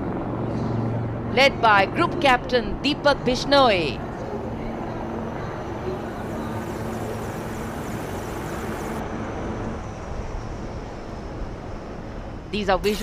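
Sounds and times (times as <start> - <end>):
military aircraft flying over: 0.0 - 12.4
faint hum: 3.8 - 13.0.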